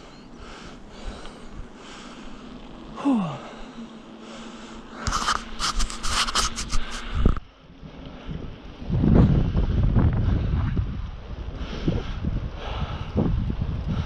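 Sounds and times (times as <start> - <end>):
person breathing: 0.0 - 5.5, 6.6 - 7.4, 11.5 - 13.3.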